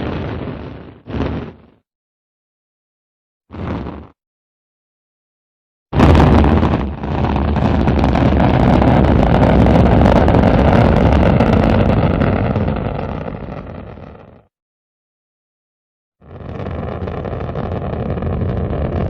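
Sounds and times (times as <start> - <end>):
rocket launch roar: 0.0 - 1.8, 6.0 - 14.5, 16.2 - 19.0.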